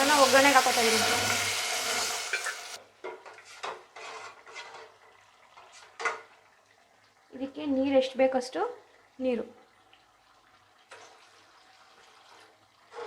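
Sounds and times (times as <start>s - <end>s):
seeds sizzling in hot oil: 0.0s - 2.8s
spoon stirring and scraping pot: 0.0s - 6.4s, 10.9s - 13.0s.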